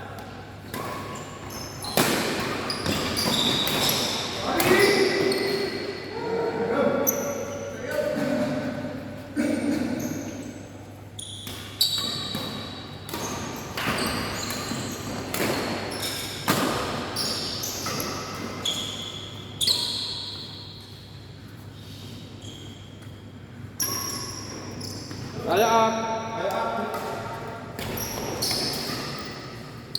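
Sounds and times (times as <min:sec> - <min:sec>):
shoe squeaks on court floor: 0:00.8 - 0:05.9, 0:09.9 - 0:16.4, 0:17.2 - 0:21.2, 0:22.4 - 0:25.6, 0:27.8 - 0:29.7.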